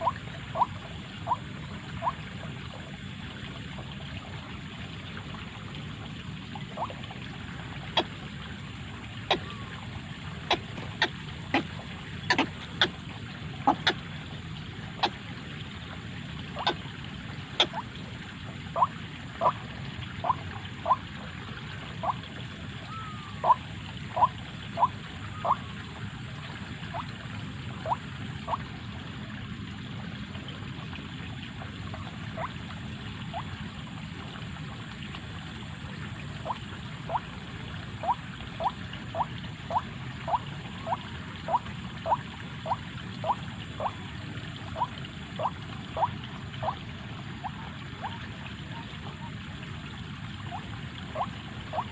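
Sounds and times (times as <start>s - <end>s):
waterhen calling: 0.0s - 2.7s, 6.5s - 28.7s, 31.6s - 33.6s, 36.3s - 51.9s
low background rumble: 0.0s - 51.9s.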